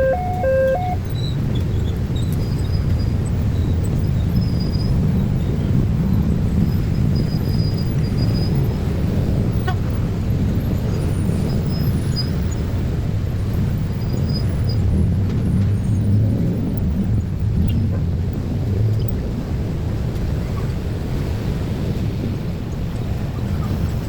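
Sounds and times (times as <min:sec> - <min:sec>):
faint high chirps: 0:00.0 - 0:01.0
passing road vehicles rumbling: 0:00.0 - 0:24.0.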